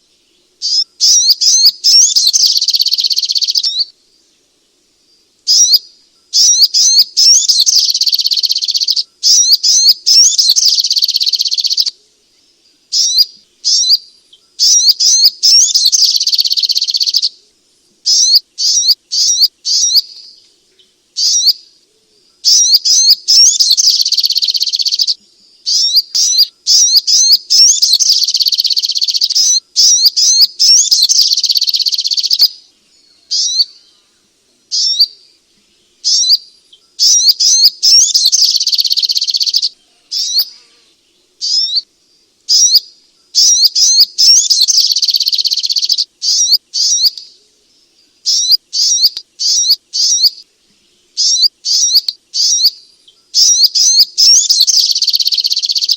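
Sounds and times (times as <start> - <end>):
bird chirping and chattering: 0.6 - 3.8, 5.5 - 11.9, 12.9 - 17.3, 18.1 - 20.3, 21.2 - 21.6, 22.4 - 32.6, 33.3 - 33.8, 34.7 - 35.2, 36.0 - 36.4, 37.0 - 40.5, 41.4 - 41.8, 42.5 - 42.8, 43.4 - 47.3, 48.2 - 50.4, 51.2 - 52.8, 53.4 - 55.9.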